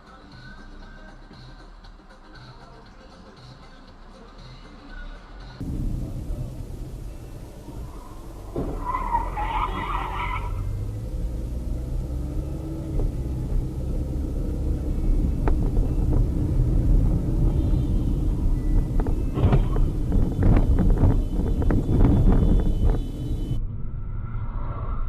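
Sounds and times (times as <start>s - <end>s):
car road and engine rumble: 5.0s - 25.0s
sharp knocks and clatters: 18.8s - 20.8s.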